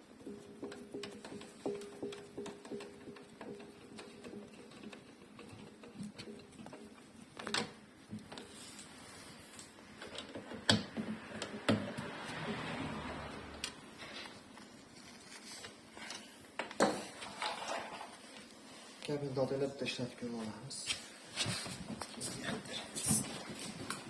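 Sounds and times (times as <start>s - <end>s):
clicks and knocks of hand work: 0.0s - 8.6s, 9.6s - 12.8s
soft rustling or scraping: 8.4s - 9.7s, 13.9s - 16.4s, 17.1s - 24.0s.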